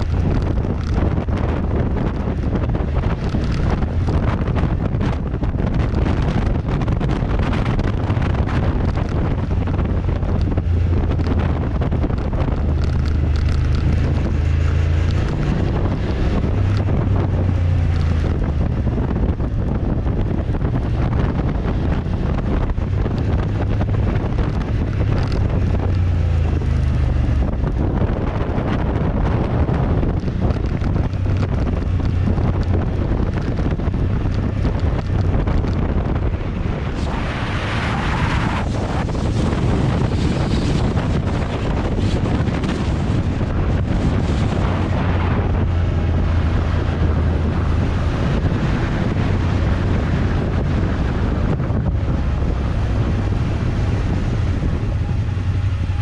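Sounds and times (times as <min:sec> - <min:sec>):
motorcycle engine running: 0:00.0 - 0:37.2, 0:38.6 - 0:56.0
wind rush on microphone: 0:00.0 - 0:56.0.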